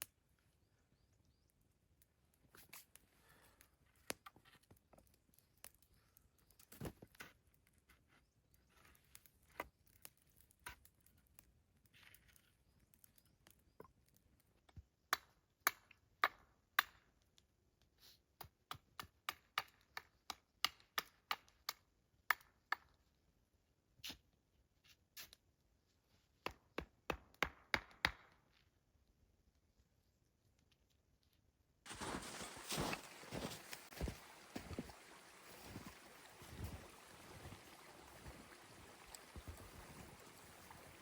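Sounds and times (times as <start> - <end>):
crisp chopping strokes: 31.9 - 36.7.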